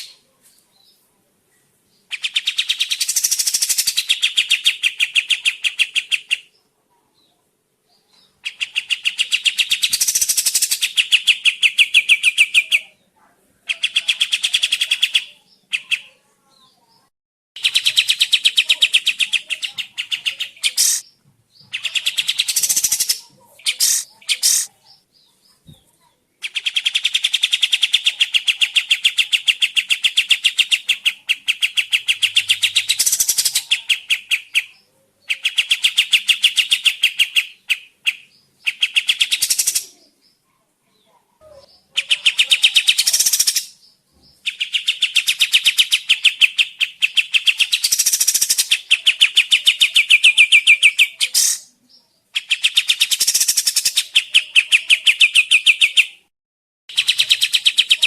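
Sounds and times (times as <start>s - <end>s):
songbird rattling trill: 2.1s - 5.1s, 21.8s - 24.7s, 44.5s - 51.6s
short sharp bird calls: 17.6s - 25.0s, 41.5s - 51.8s.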